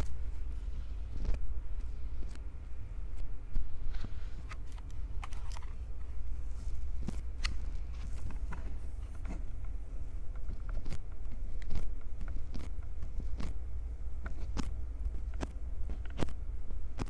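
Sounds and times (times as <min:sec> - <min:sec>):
hands rubbing on microphones: 0:00.0 - 0:13.6
soft clicks and crackles: 0:00.0 - 0:17.0.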